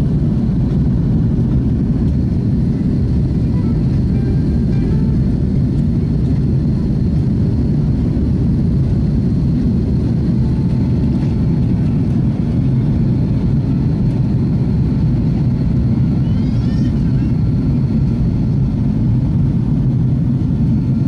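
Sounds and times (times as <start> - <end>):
jet engines roaring: 0.0 - 21.0
faint high whine: 3.4 - 5.6.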